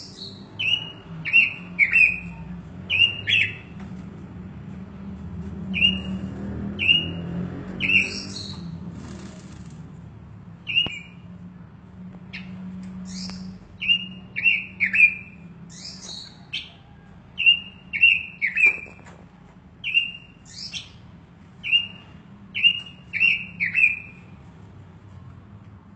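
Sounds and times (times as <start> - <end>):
bird giving sharp chirps: 5.8 - 9.3, 13.1 - 16.7, 19.8 - 21.0.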